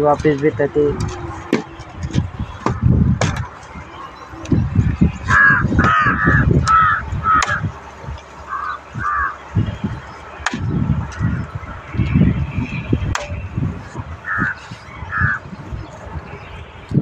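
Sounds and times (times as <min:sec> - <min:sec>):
bird calling: 0:03.7 - 0:16.6.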